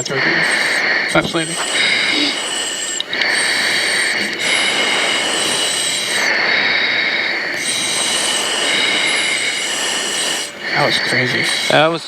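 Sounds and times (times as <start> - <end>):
turboprop engine whine in cockpit: 0.0 - 12.0.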